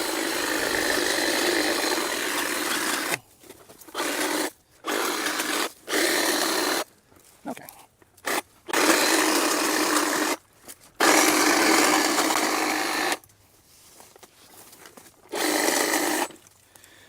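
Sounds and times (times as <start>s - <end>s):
electric power saw cutting brush: 0.0s - 3.2s, 3.9s - 6.9s, 8.2s - 10.4s, 11.0s - 13.2s, 15.3s - 16.4s.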